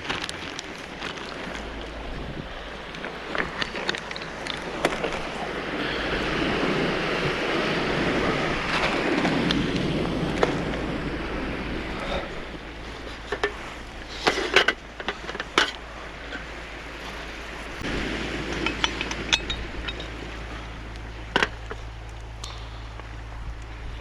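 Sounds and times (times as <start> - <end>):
light sharp clinks and taps: 18.5 - 20.2.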